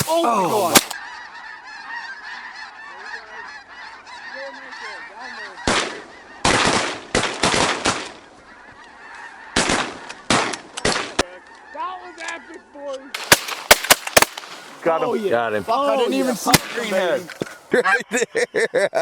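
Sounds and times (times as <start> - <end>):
geese calling: 0.0 - 18.6
shotgun blasts: 13.2 - 14.8.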